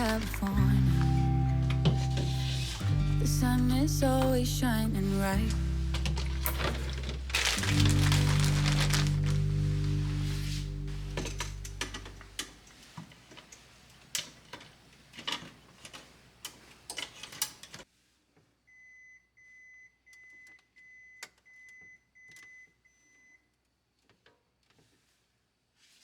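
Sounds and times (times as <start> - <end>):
refrigerator alarm beeping: 18.7 - 23.4.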